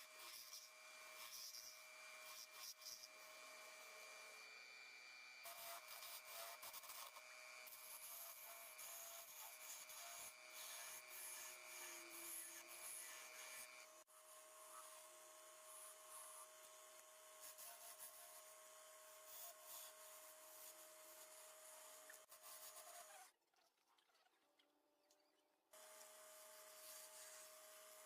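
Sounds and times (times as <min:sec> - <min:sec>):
tool scraping wood: 0:05.5 - 0:13.9.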